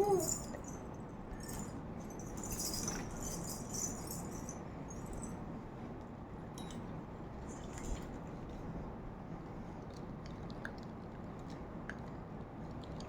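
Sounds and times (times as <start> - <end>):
jingling rattling: 0.0 - 5.4.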